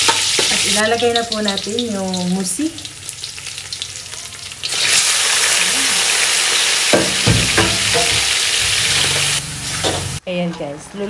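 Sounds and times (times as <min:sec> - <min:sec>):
clanks against a wok: 0:00.0 - 0:02.2, 0:06.9 - 0:08.4, 0:09.0 - 0:10.2
food sizzling in a wok: 0:00.0 - 0:10.2.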